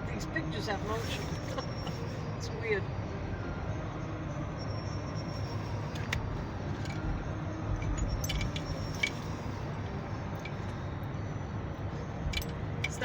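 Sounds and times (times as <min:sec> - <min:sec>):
car road rumble from cabin: 0:00.0 - 0:13.0
light metallic clinks: 0:05.4 - 0:11.0, 0:12.1 - 0:13.0.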